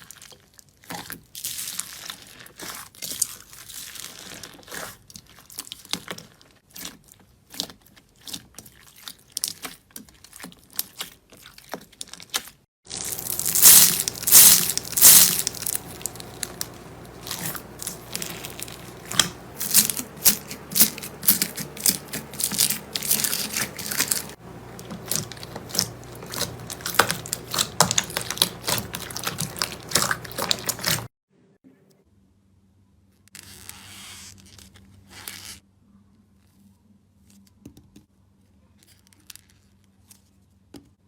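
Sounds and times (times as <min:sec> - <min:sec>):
slime crackling and popping: 0:12.0 - 0:31.1.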